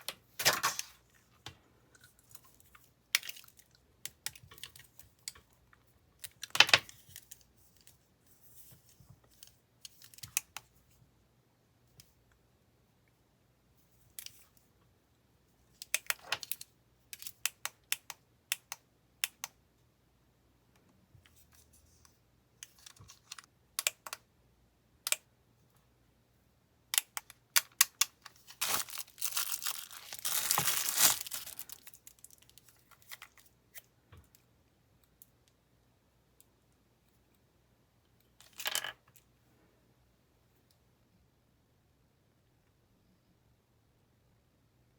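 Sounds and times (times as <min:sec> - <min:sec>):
packaging tearing and crinkling: 0:27.9 - 0:33.1.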